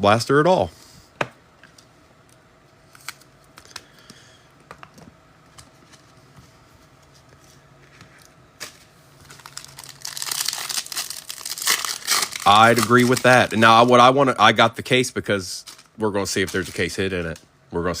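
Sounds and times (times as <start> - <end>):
plastic packaging tearing: 8.6 - 14.0.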